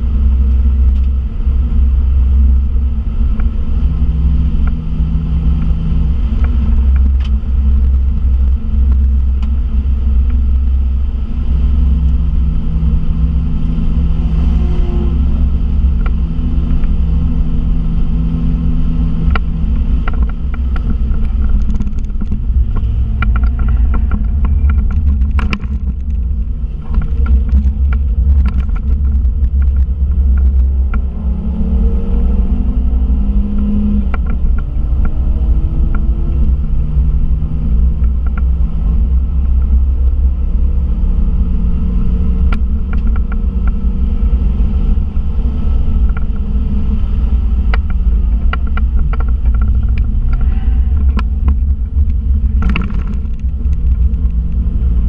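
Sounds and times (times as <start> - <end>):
car engine drone: 0.0 - 55.0
road noise: 0.0 - 55.0
clicks and rattles: 19.2 - 31.1, 47.6 - 54.7.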